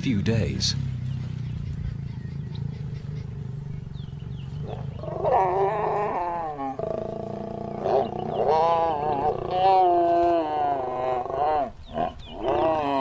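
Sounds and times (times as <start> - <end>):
lions growling: 4.4 - 13.0.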